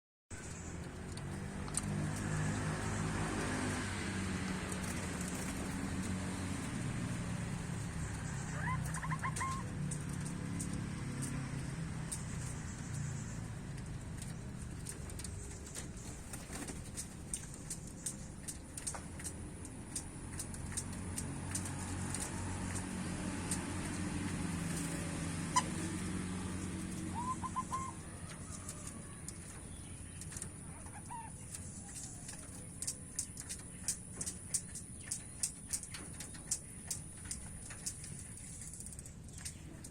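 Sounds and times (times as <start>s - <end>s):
bird chirping: 5.7s - 39.9s
dove cooing: 7.7s - 10.4s, 25.0s - 29.2s.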